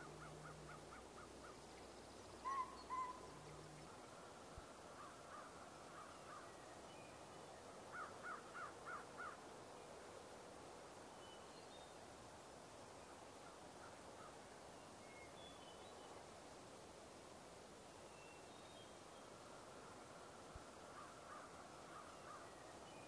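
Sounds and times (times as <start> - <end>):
birds calling faintly: 0.0 - 10.1, 17.9 - 23.0.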